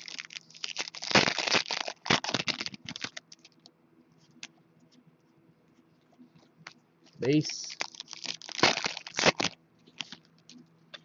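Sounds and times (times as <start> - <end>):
foil wrapper crinkling: 0.0 - 3.6, 7.2 - 10.6.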